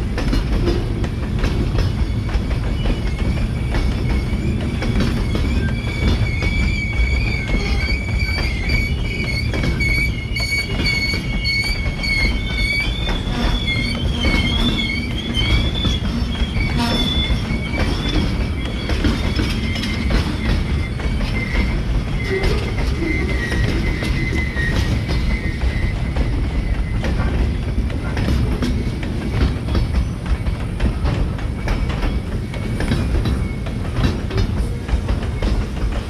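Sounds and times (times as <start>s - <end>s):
train wheels rumbling on rail: 0.0s - 36.0s
high-pitched wheel squeal: 1.9s - 27.3s.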